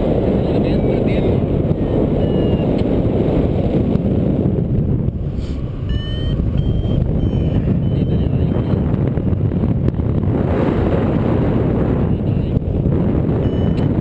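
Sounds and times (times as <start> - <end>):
wind buffeting microphone: 0.0 - 14.0
variometer short high beeps: 1.8 - 2.7, 5.8 - 9.0, 13.3 - 14.0.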